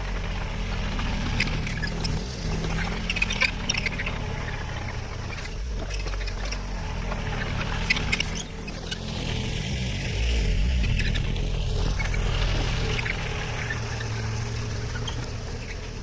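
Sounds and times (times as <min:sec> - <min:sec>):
excavator engine running: 0:00.0 - 0:16.0
rubble clinking and rattling: 0:11.2 - 0:16.0.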